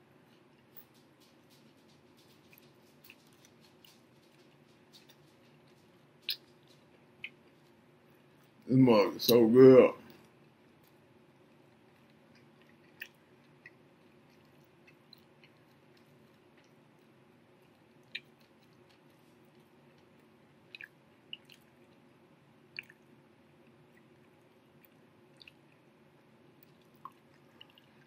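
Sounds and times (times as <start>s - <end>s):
person chewing quietly: 0.0s - 28.0s
mouth clicks and smacks: 1.9s - 7.6s, 11.8s - 17.0s, 17.6s - 19.2s, 19.9s - 22.0s, 22.7s - 25.8s.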